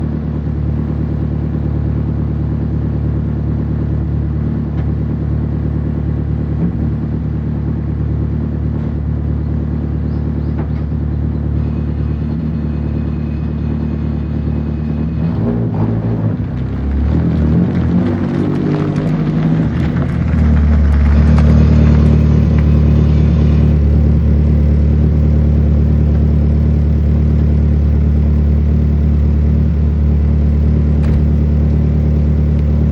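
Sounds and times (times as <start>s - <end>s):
car engine idling: 0.0s - 32.9s.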